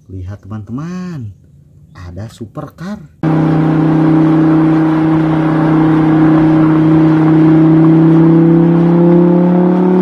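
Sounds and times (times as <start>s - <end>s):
car engine: 3.2s - 10.0s.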